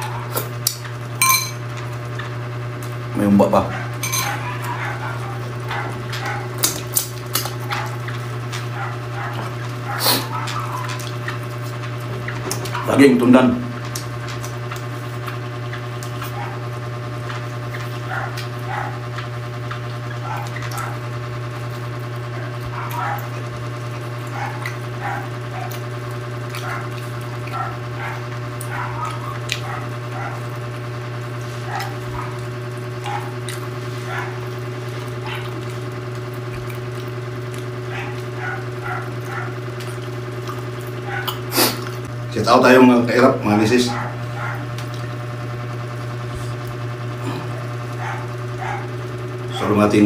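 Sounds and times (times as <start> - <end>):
chewing and mouth sounds: 0.0 - 3.1, 3.7 - 42.2, 44.0 - 45.2, 46.0 - 49.4
steady low hum: 0.0 - 50.0.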